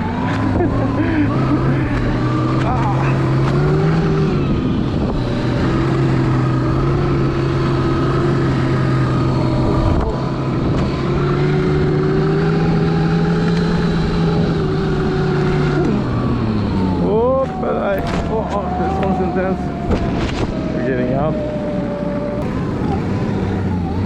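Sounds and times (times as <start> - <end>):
snow track running: 0.0 - 12.8
electric motor whine: 0.0 - 24.0.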